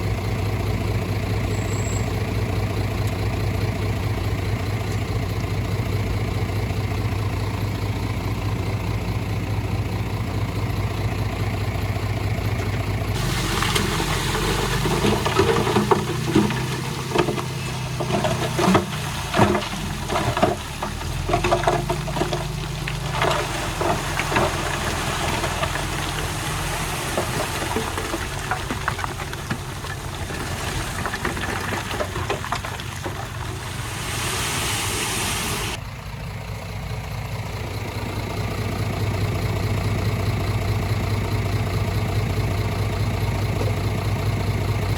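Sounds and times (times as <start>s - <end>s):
diesel construction machine engine: 0.0s - 44.9s
soil and stones clattering: 12.4s - 35.8s.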